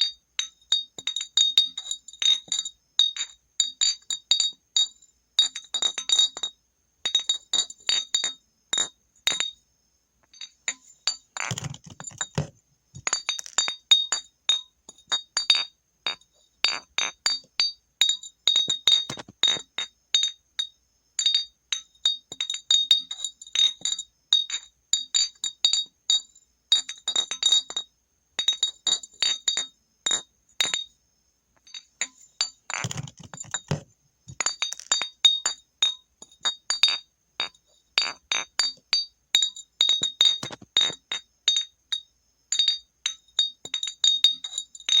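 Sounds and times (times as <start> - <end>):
glass bottle clinking: 10.4 - 19.7, 28.4 - 30.9, 31.6 - 45.0.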